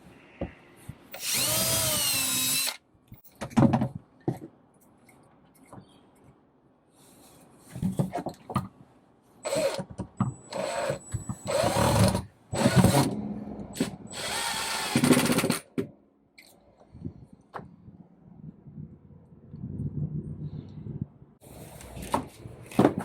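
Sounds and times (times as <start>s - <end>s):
power drill running in bursts: 1.2s - 2.8s, 14.1s - 15.3s.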